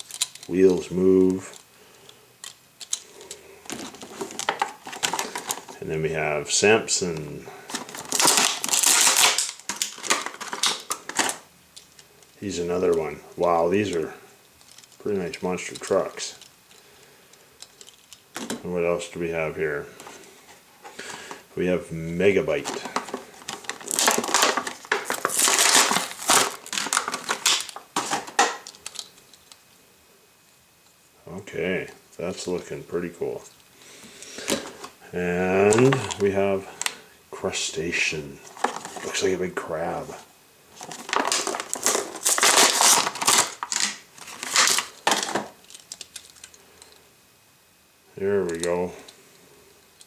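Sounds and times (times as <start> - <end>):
toy packaging crinkling: 0.0 - 1.6, 2.4 - 5.8, 6.6 - 14.0, 14.6 - 16.8, 22.2 - 29.6, 34.4 - 37.0, 38.4 - 39.9, 40.7 - 47.0, 48.4 - 48.9.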